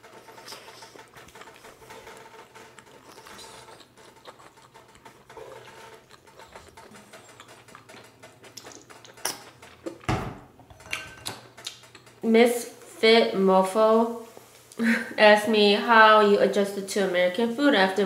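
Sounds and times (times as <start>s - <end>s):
person chewing noodles: 0.0s - 10.1s, 11.6s - 12.2s.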